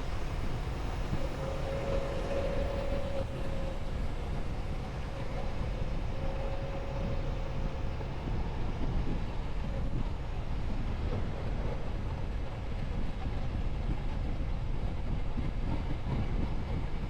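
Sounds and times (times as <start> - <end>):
faint high whine: 0.0 - 9.8.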